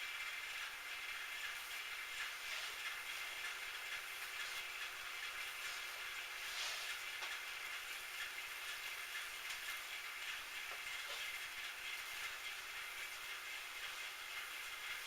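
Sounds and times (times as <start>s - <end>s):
faint light ticks: 9.4s - 9.8s.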